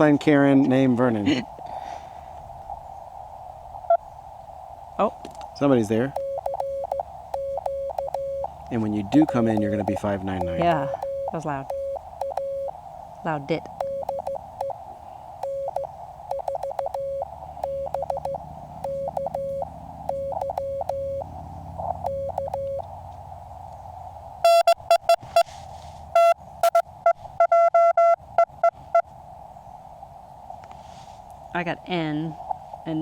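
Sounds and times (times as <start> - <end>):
radio band hiss: 0.0 - 7.4, 8.3 - 15.2
loud harsh morse signal: 5.7 - 14.8, 15.4 - 22.9, 24.4 - 25.5, 26.2 - 26.8
morse code tones: 6.0 - 14.8, 15.4 - 22.9, 24.4 - 25.5, 26.2 - 29.0.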